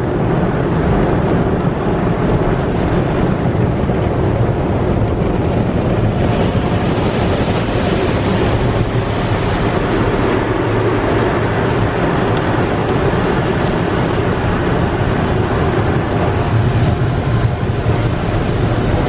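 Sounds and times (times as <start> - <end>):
car wash equipment rushing: 0.0 - 19.0.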